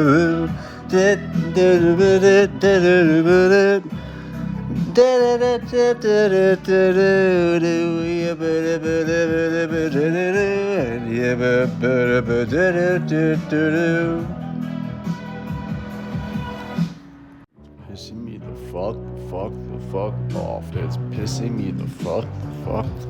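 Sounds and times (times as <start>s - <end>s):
person singing long held notes: 0.0s - 14.7s.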